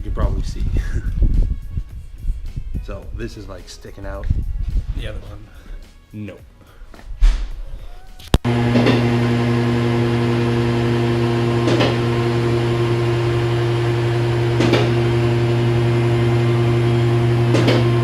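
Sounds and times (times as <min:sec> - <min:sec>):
steady machine hum: 0:08.4 - 0:18.0.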